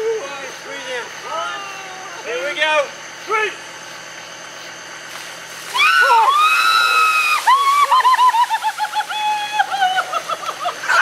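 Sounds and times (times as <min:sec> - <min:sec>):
tractor engine idling: 0:00.0 - 0:11.0
pouring water splash: 0:05.1 - 0:10.8
short shrieks: 0:05.6 - 0:08.6
person screaming: 0:05.8 - 0:08.0.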